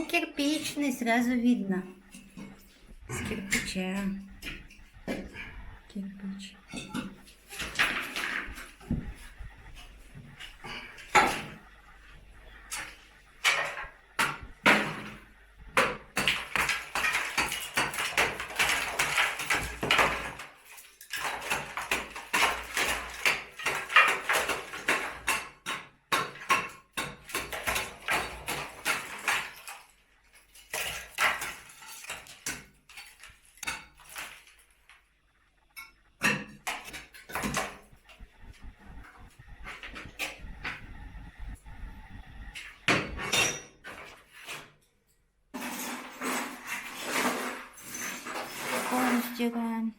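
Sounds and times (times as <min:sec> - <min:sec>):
brick rubble clattering and scraping: 0:06.7 - 0:11.7, 0:16.0 - 0:25.7, 0:27.2 - 0:34.8, 0:45.5 - 0:49.5.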